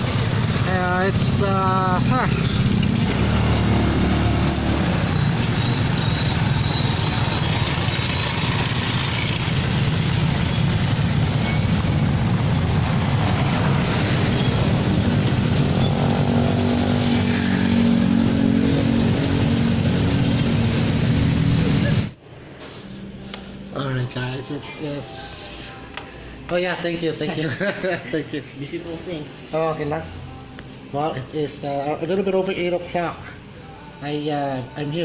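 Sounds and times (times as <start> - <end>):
truck driving in traffic: 0.0 - 22.2.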